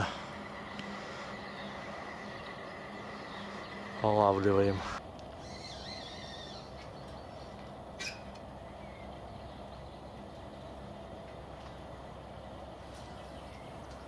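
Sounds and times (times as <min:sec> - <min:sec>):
bird call: 0:00.0 - 0:10.1
distant road traffic rumble: 0:00.0 - 0:14.0
faint bird chirps: 0:05.4 - 0:10.1.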